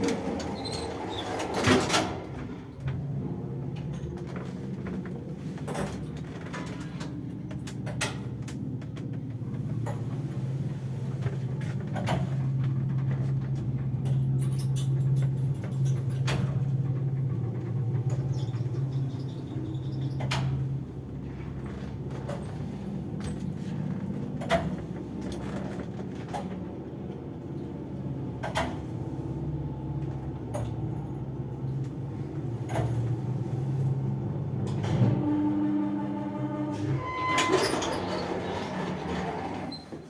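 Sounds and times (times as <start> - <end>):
lift motor and gearbox drone: 34.3 - 39.9.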